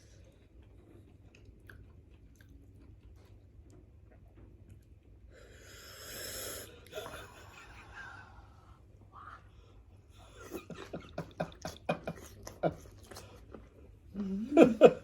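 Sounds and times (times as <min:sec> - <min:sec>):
chewing and biting food: 0:00.2 - 0:05.0, 0:12.2 - 0:13.9.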